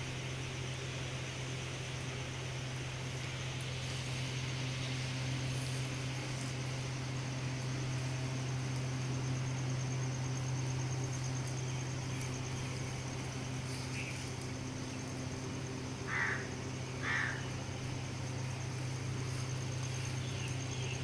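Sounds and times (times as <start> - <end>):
steady low hum: 0.0 - 21.0
short bird calls: 16.1 - 17.6.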